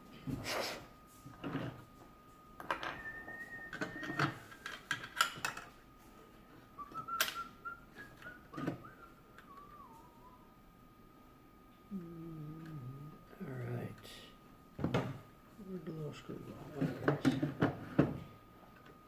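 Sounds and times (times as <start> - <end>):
faint high whistle tone: 2.7 - 4.9, 6.8 - 10.6
whistled notes gliding downward: 2.8 - 4.8, 6.8 - 10.6.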